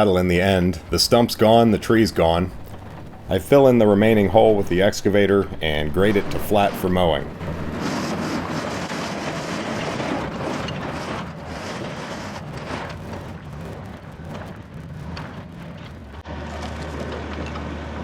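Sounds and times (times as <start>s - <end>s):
excavator diesel engine working: 0.0s - 9.0s
bucket knocking and scraping soil: 0.0s - 17.8s.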